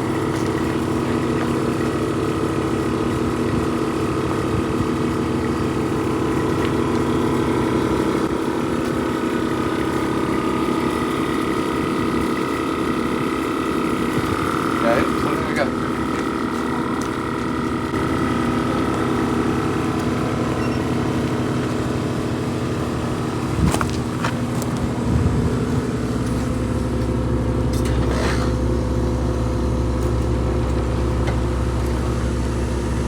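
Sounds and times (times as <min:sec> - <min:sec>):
motor humming: 0:00.0 - 0:33.0
deeper hum: 0:14.0 - 0:33.0.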